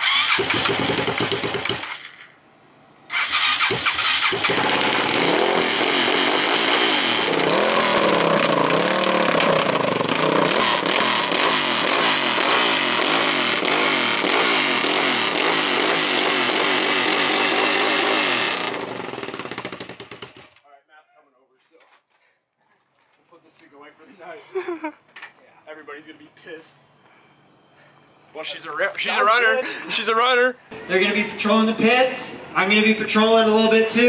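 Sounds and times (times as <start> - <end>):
motorcycle engine starting and revving: 0.0 - 2.4, 3.1 - 20.6.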